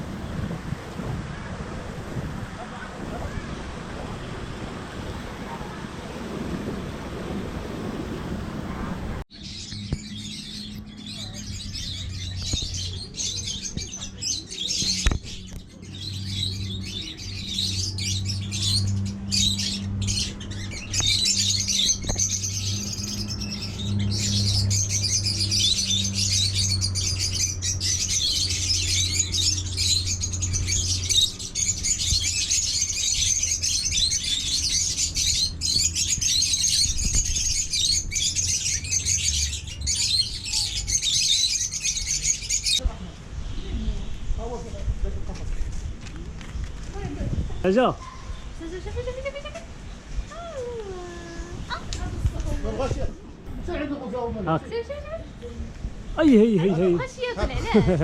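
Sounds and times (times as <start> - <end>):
birds chirping and squawking: 9.3 - 42.8, 45.6 - 58.0.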